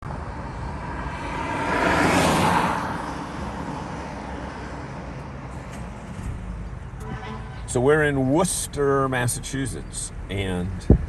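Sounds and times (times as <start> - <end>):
car passing by: 0.1 - 8.0.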